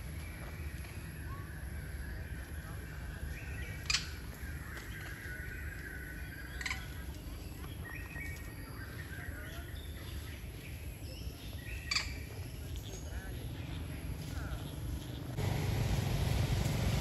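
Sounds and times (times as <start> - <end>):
birds chirping: 0.0 - 17.0
steady low rumble: 12.4 - 17.0.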